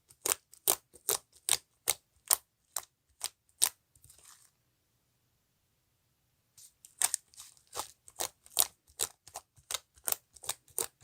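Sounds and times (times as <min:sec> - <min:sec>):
slime squishing: 0:00.0 - 0:04.5, 0:06.6 - 0:11.0.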